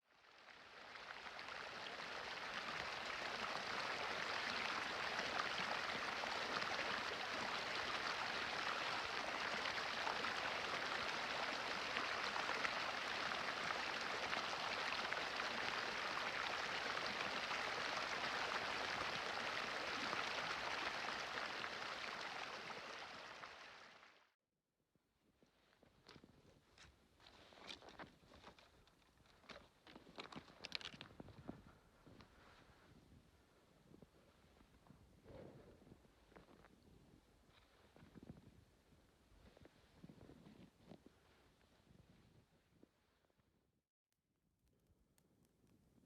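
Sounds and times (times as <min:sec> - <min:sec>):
campfire crackling: 0:00.4 - 0:23.9.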